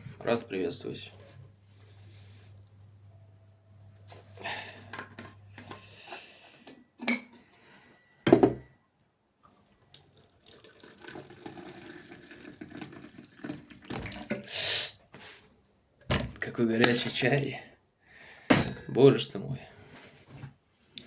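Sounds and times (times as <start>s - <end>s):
tea pouring into a cup: 9.6s - 13.9s.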